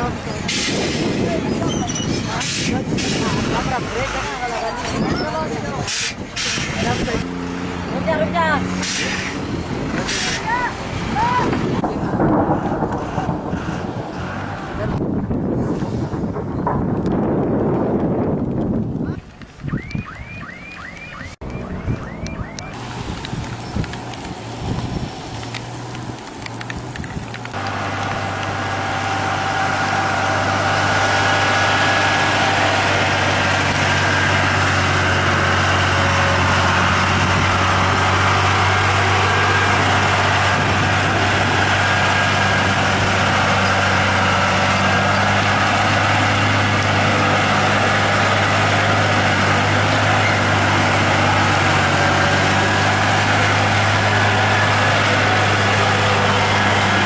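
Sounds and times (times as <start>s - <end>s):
truck engine droning: 0.0s - 19.0s, 19.6s - 57.0s
wind-like noise: 9.0s - 20.5s.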